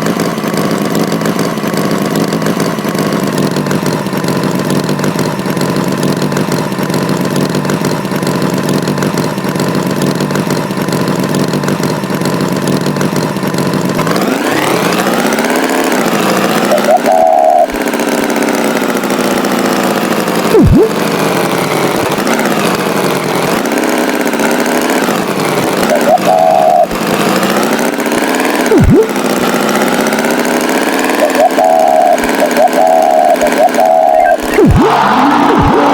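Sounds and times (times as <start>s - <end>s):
tractor engine running and revving: 0.0s - 35.9s
sharp pitch swoop: 20.5s - 21.0s, 28.7s - 29.2s, 31.3s - 35.9s
short high tone: 20.6s - 21.0s, 28.7s - 29.2s, 31.2s - 35.9s.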